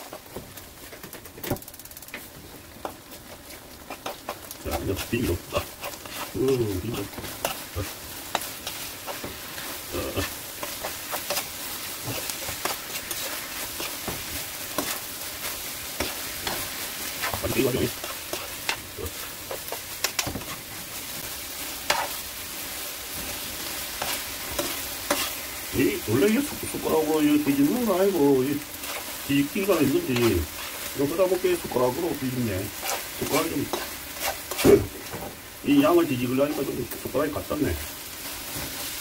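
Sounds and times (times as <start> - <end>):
fish strips sizzling in a pan: 0.0 - 39.0
spoon scraping a pan: 2.8 - 20.7, 21.8 - 22.2, 23.2 - 25.7, 28.7 - 31.0, 32.6 - 35.1.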